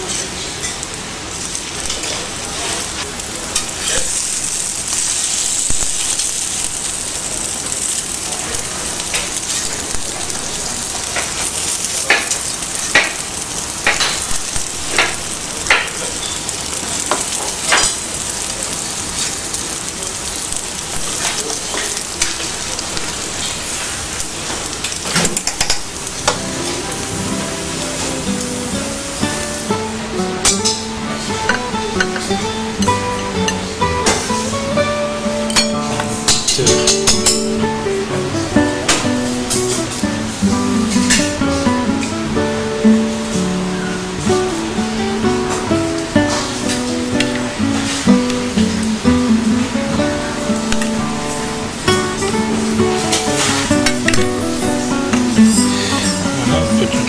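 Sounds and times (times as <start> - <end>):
acoustic guitar music: 1.7 - 6.8, 8.6 - 12.0, 12.6 - 16.8, 20.5 - 57.0
pancakes sizzling in a pan: 1.7 - 28.7.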